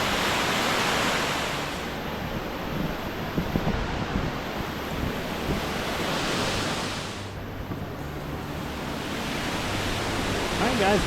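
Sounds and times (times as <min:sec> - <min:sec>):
waterfall rushing: 0:00.0 - 0:02.2, 0:03.0 - 0:11.0
wind buffeting microphone: 0:00.0 - 0:11.0.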